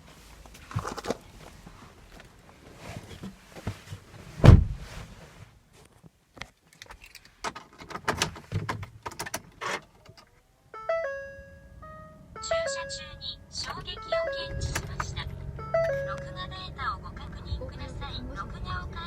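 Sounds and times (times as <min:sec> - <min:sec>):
clicks and knocks in car cabin: 0:03.1 - 0:04.9, 0:07.4 - 0:10.3
loud low thump: 0:04.4 - 0:04.9
electronic start-up chime: 0:10.8 - 0:16.9.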